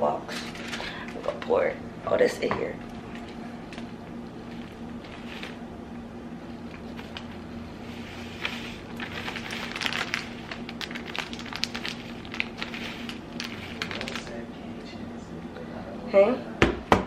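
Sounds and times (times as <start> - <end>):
plastic pouch crinkling: 6.6 - 7.4, 8.3 - 14.4.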